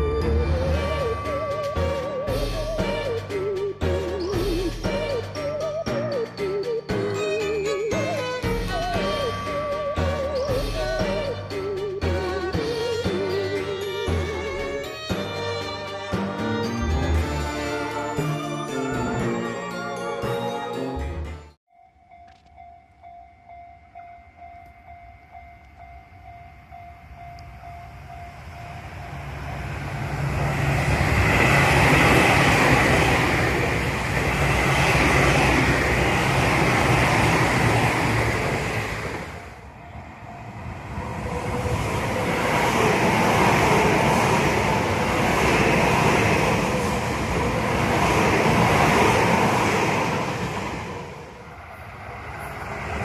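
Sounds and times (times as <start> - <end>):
train wheels on rails: 22.2 - 53.0.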